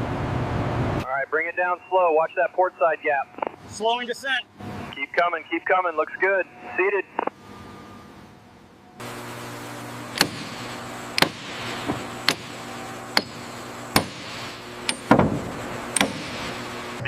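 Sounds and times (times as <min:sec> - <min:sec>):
machinery hum: 0:00.0 - 0:17.0
sharp knocks: 0:10.1 - 0:16.6.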